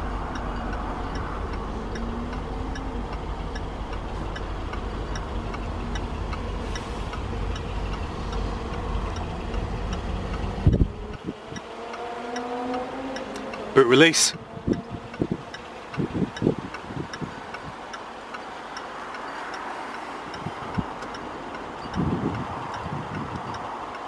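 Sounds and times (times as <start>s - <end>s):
low rumble: 0.0s - 11.5s
light ticking: 0.0s - 24.0s.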